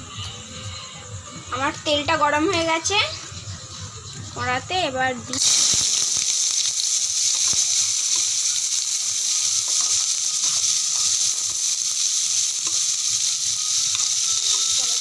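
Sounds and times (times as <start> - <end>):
onions sizzling in hot oil: 5.3 - 15.0.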